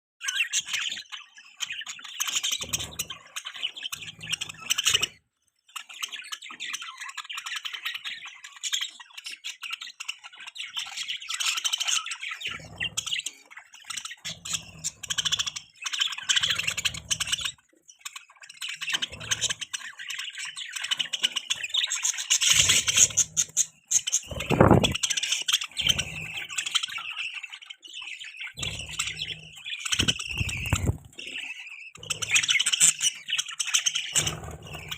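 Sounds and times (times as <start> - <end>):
budgerigars chirping and chattering: 0.2 - 34.9.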